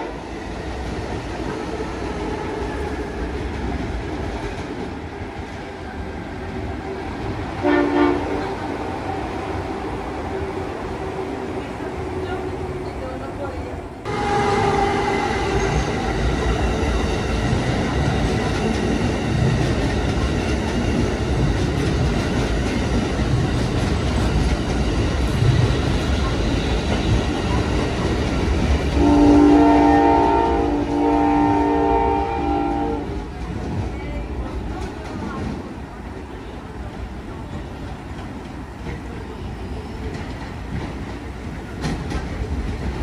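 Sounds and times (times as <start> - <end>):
train running on tracks: 0.0 - 43.0
train air horn chord: 7.6 - 8.4, 14.1 - 15.3, 29.0 - 33.1.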